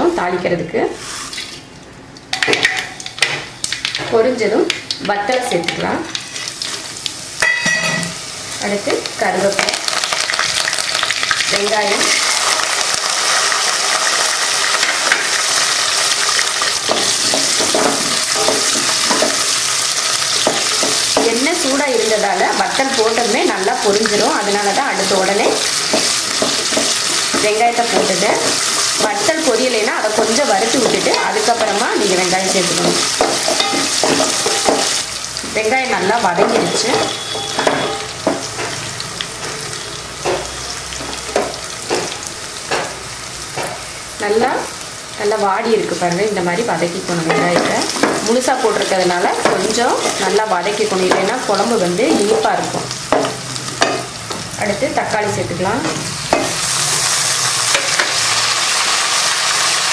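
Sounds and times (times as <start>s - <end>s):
food sizzling in hot oil: 2.3s - 59.9s.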